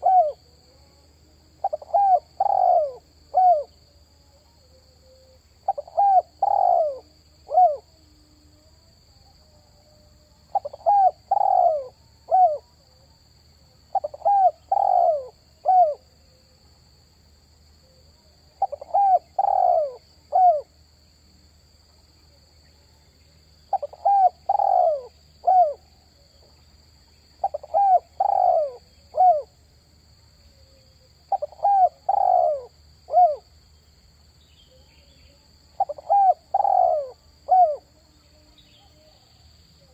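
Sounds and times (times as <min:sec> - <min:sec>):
dove cooing: 0:00.0 - 0:00.5, 0:01.6 - 0:03.7, 0:05.1 - 0:07.9, 0:10.5 - 0:12.6, 0:13.9 - 0:16.0, 0:18.6 - 0:20.7, 0:23.7 - 0:25.9, 0:27.4 - 0:29.6, 0:31.3 - 0:33.4, 0:35.8 - 0:37.9.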